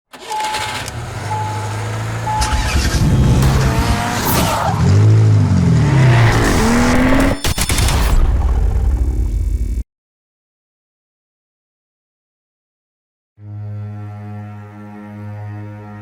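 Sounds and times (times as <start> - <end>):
car engine revving: 0.1 - 7.5.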